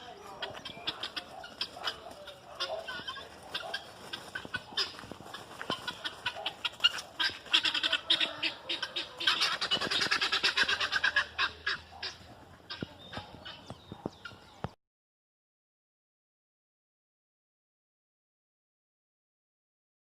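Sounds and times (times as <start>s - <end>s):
poultry squawking and cackling: 0.0s - 14.8s.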